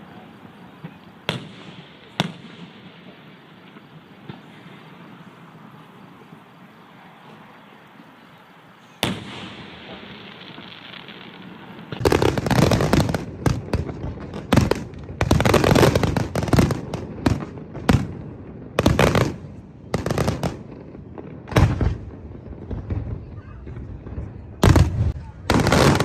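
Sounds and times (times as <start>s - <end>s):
fireworks banging and crackling: 0.0s - 8.2s, 8.8s - 26.0s.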